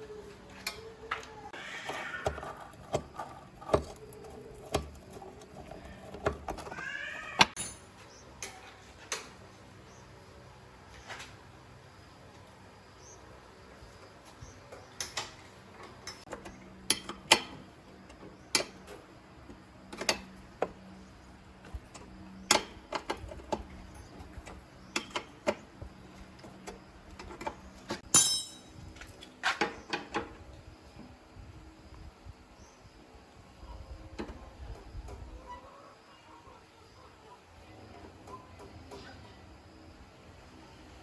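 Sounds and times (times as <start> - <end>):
hand tools clicking on metal: 1.9 - 7.8, 15.0 - 19.0
ringing metallic clink: 28.1 - 28.8.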